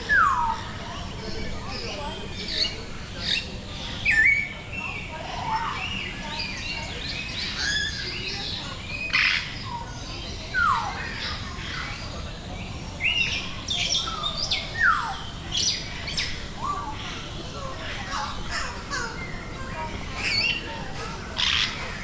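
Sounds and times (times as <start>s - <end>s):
birds chirping and whistling: 0.0s - 11.2s, 13.0s - 17.1s.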